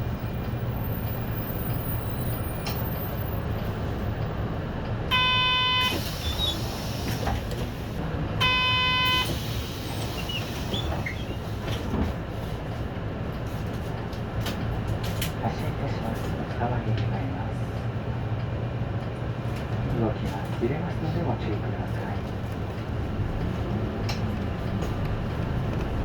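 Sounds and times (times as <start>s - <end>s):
bus engine idling: 0.0s - 26.0s.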